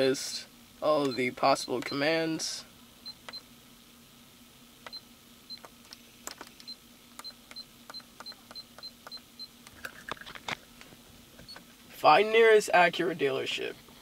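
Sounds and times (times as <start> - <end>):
faint steady hum: 0.0 - 14.0
sharp clicks of device controls: 4.8 - 9.8.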